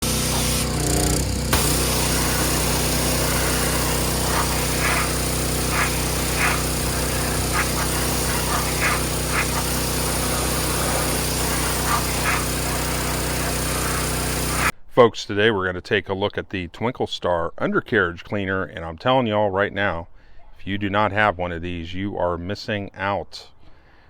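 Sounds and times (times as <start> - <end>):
small engine running: 0.0 - 14.7.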